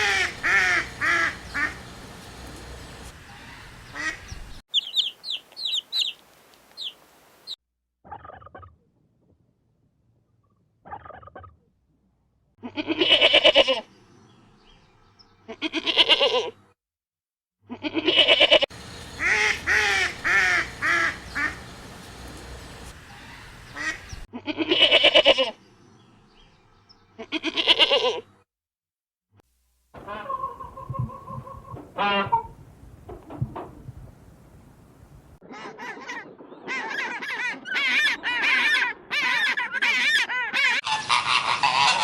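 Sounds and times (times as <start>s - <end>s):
waterfowl calling: 0.0s - 7.6s, 18.7s - 24.3s, 30.0s - 32.6s, 35.5s - 42.0s.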